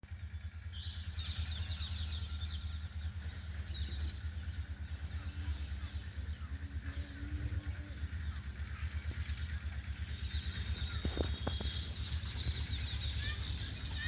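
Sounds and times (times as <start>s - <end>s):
birds chirping: 0.0s - 14.0s
steady low rumble: 0.0s - 14.0s.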